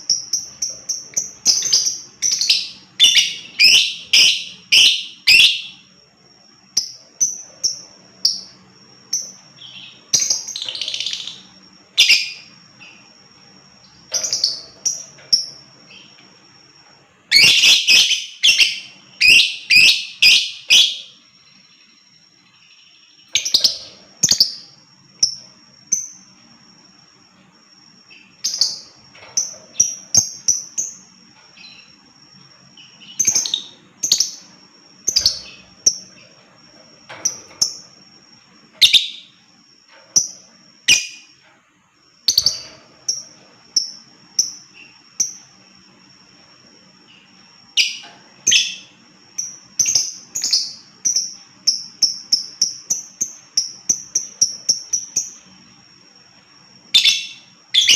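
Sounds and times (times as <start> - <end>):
bird high-pitched chirps: 0.0 - 5.9, 6.7 - 13.1, 13.8 - 16.2, 17.3 - 26.2, 32.7 - 36.3, 38.8 - 39.4, 40.1 - 41.4, 42.2 - 45.6, 47.0 - 55.6, 56.9 - 57.9.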